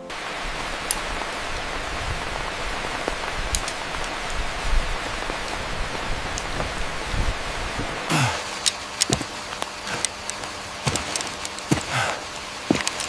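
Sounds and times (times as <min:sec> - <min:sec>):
low rumbles: 0:00.0 - 0:13.0
steady rushing hiss: 0:00.0 - 0:13.0
faint clicks: 0:03.0 - 0:06.7, 0:08.5 - 0:12.0.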